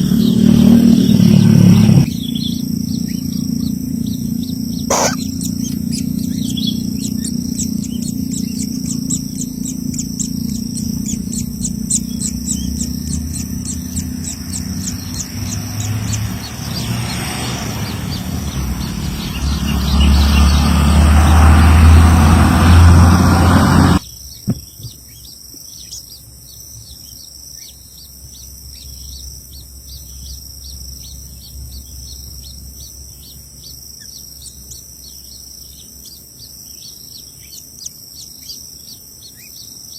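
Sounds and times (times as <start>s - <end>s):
high-pitched insect drone: 0.0s - 24.0s
bird chirping rapidly: 0.0s - 39.9s.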